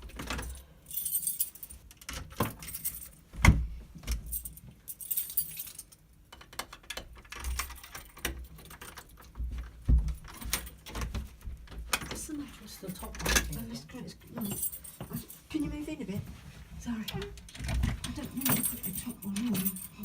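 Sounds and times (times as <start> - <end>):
keys jangling: 0.1 - 3.3, 4.1 - 6.1, 7.2 - 9.4, 14.4 - 15.5, 17.6 - 20.0.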